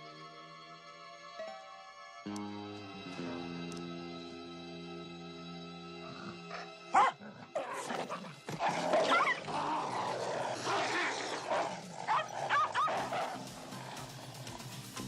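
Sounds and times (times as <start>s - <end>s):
dog barking: 6.6s - 7.3s, 10.7s - 13.5s.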